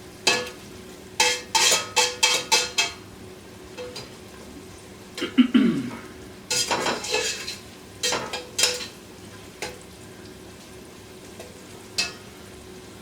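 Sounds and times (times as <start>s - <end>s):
utensil scraping in pot: 1.2s - 2.7s, 6.5s - 8.9s.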